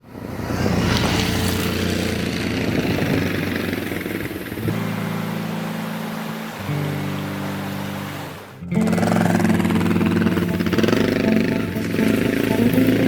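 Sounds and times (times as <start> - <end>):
motorcycle engine revving: 0.0 - 13.0
music with sustained chords: 3.0 - 13.0.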